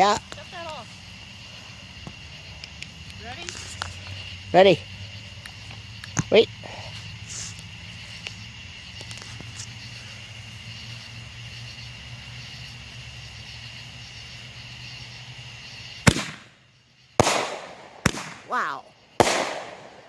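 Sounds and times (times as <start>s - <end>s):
insects chirping: 0.0s - 20.0s
firework bang: 16.0s - 16.6s, 17.2s - 18.5s, 19.2s - 20.0s.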